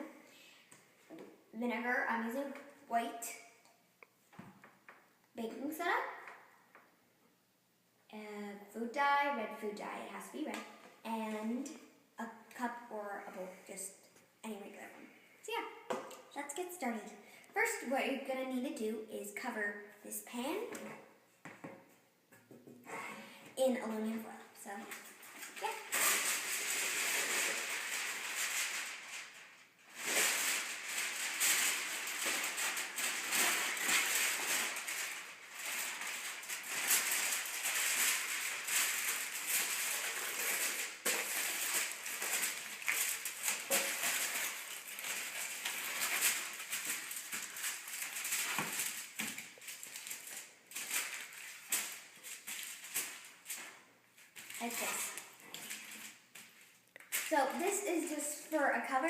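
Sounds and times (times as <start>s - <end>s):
aluminum foil crinkling: 24.5s - 59.0s.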